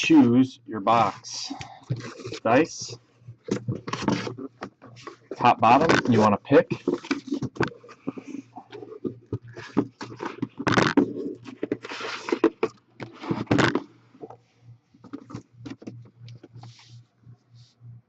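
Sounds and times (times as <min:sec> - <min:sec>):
faint low hum: 0:00.0 - 0:18.0
objects handled on a table: 0:01.8 - 0:14.4.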